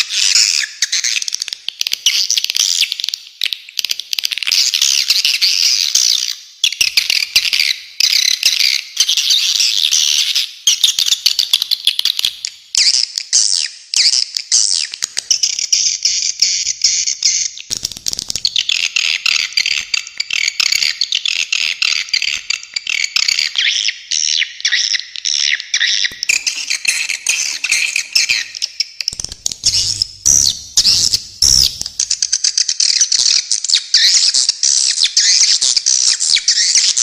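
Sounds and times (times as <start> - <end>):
swiftlets twittering: 26.1 - 32.5.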